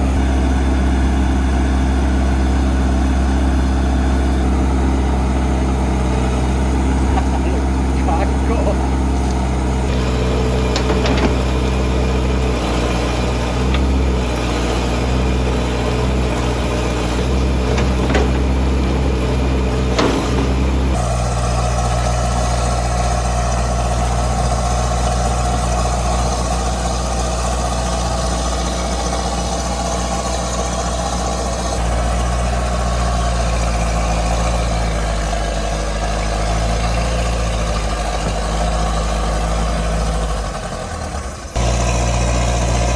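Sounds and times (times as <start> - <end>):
excavator diesel engine running: 0.0 - 42.9
sharp knocks: 10.6 - 11.7, 17.4 - 21.0.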